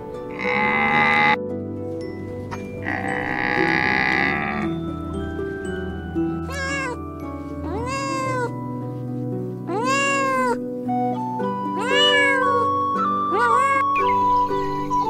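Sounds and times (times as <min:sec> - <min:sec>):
background music: 0:00.0 - 0:15.0
cat meowing: 0:06.4 - 0:07.0, 0:07.6 - 0:08.6, 0:09.7 - 0:10.6, 0:11.7 - 0:14.1.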